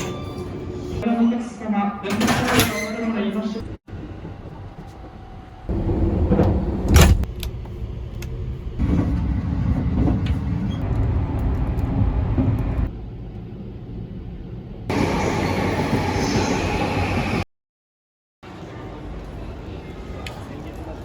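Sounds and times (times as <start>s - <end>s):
train rumbling: 3.9s - 17.4s.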